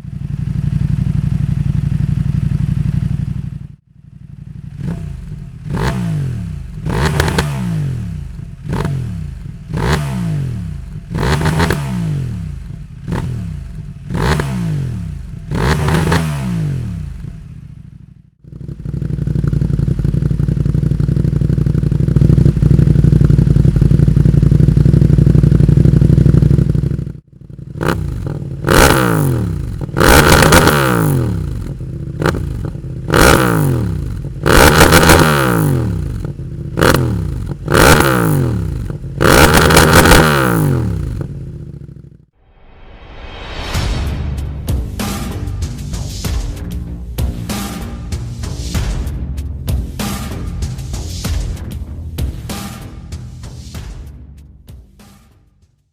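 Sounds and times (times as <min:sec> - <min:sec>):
motorcycle engine revving: 0:00.0 - 0:42.4.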